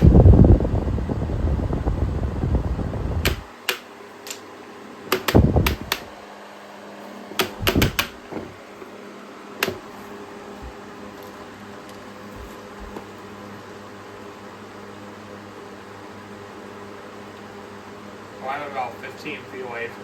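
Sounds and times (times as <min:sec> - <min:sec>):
fan air buffeting microphone: 0:00.0 - 0:03.7, 0:04.9 - 0:13.7
fan hum: 0:00.0 - 0:20.0
sharp clicks and knocks: 0:03.2 - 0:04.4, 0:05.1 - 0:06.1, 0:07.4 - 0:08.5, 0:09.6 - 0:09.8.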